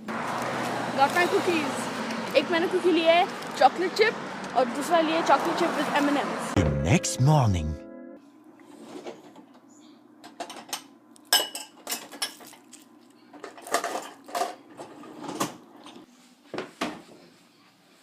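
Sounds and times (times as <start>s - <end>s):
dishes and cutlery clinking: 11.3s - 16.0s.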